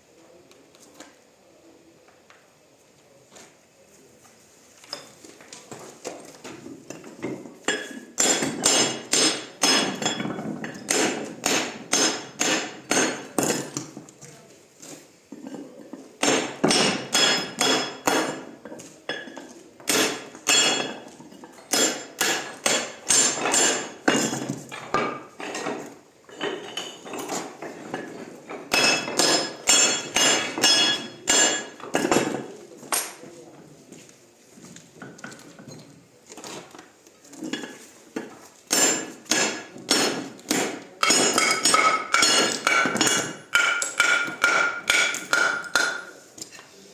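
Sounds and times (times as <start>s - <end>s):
hammer striking stone: 8.2s - 13.8s, 16.2s - 18.5s, 19.9s - 21.0s, 21.7s - 24.4s, 28.7s - 32.3s, 38.7s - 46.2s.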